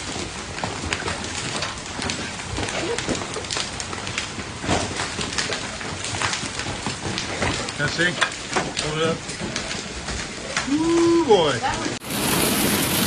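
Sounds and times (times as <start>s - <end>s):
hail hitting hard surfaces: 0.0s - 13.0s
rain hissing: 0.0s - 13.0s.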